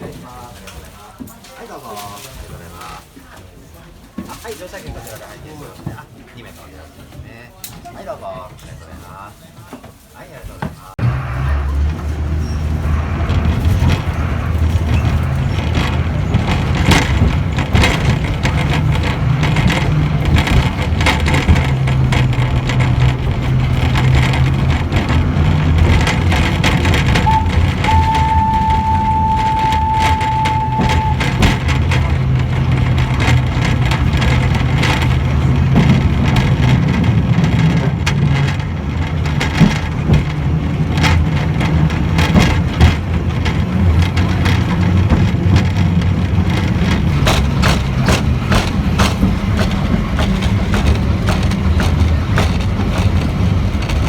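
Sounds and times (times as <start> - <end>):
wooden carriage creaks and knocks: 7.0 - 54.0
diesel engine drone: 11.0 - 54.0
steady high tone: 27.2 - 31.3.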